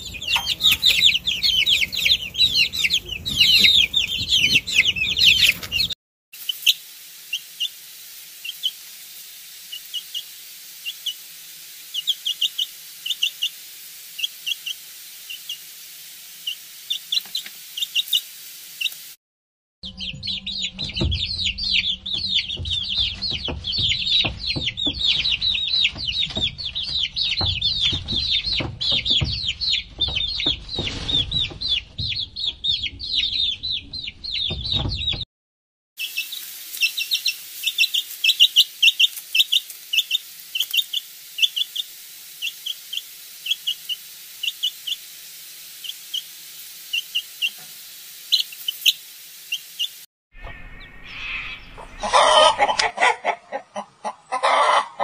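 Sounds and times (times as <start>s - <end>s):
hen clucking: 0.0s - 6.0s, 11.9s - 13.6s, 19.9s - 35.2s, 36.0s - 45.1s, 48.3s - 55.0s
chicks peeping: 0.0s - 7.7s, 9.7s - 11.2s, 11.9s - 13.6s, 14.2s - 15.6s, 16.4s - 19.0s, 19.9s - 35.2s, 36.0s - 45.1s, 45.8s - 46.3s, 46.9s - 47.6s, 48.3s - 55.0s
steady hiss: 6.4s - 19.2s, 36.0s - 50.1s.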